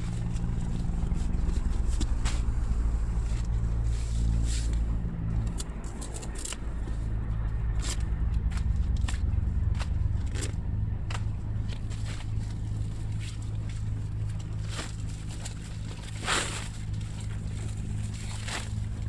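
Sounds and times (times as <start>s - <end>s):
low mechanical hum: 0.0s - 19.0s
scraping rustle: 11.7s - 19.0s.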